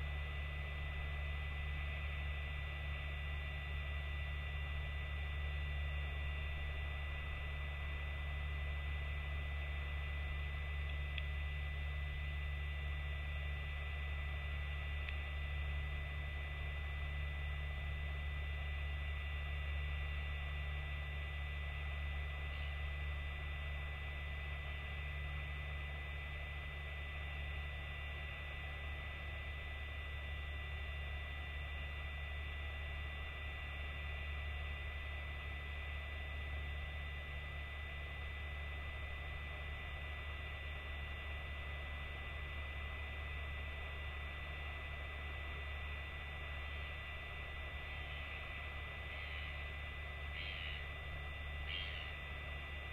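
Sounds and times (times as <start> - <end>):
constant hiss: 0.0 - 52.9
faint high whine: 0.0 - 52.9
low electrical hum: 0.0 - 52.9
faint ticks: 10.8 - 11.4, 15.0 - 15.2.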